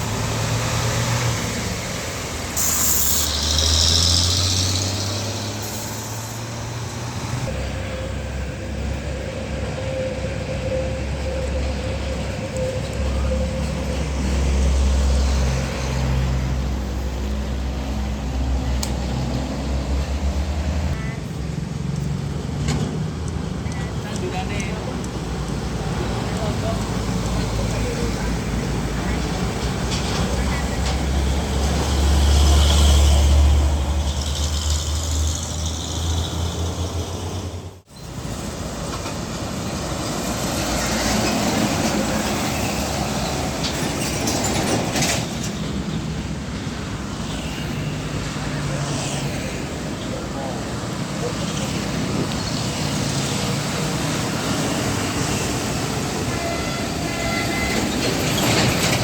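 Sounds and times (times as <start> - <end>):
diesel truck driving past: 0.0 - 23.7
truck diesel engine passing: 0.0 - 59.0
tyre road noise: 0.0 - 59.0.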